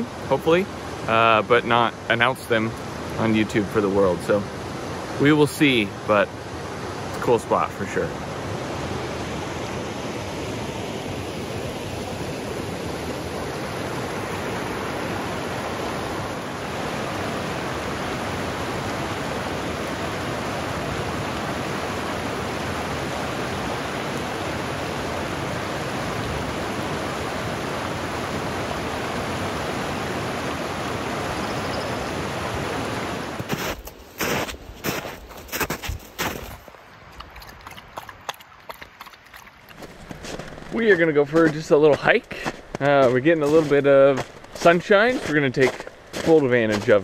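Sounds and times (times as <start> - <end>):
river rushing: 0.0 - 35.6.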